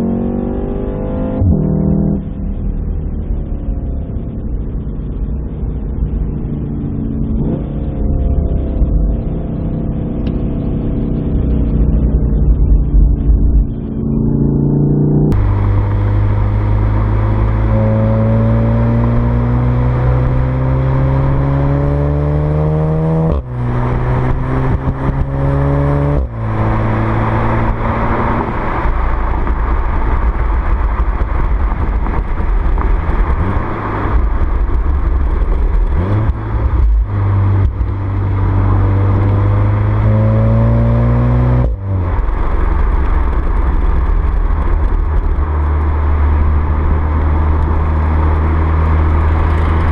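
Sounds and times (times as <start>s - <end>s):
car engine accelerating hard: 0.0s - 49.9s.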